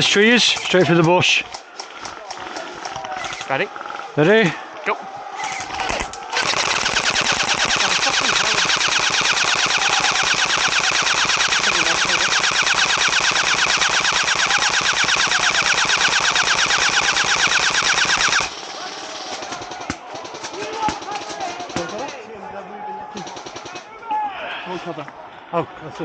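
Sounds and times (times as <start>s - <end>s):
airsoft rifle full-auto burst: 5.4s - 19.8s.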